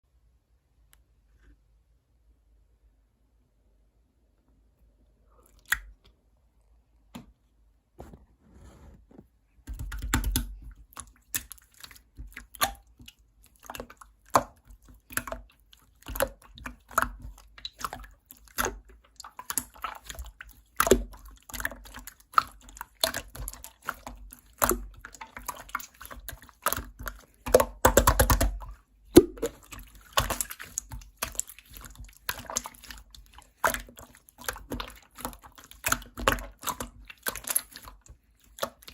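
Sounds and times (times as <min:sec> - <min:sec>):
slime squelching and clicking: 0:05.4 - 0:06.2, 0:09.7 - 0:38.9.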